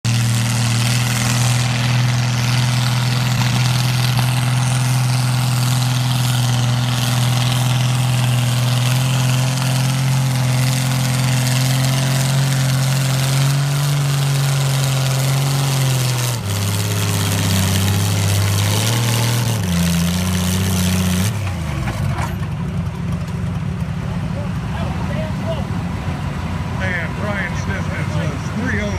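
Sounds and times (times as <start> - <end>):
tractor engine running hard: 0.0 - 28.9.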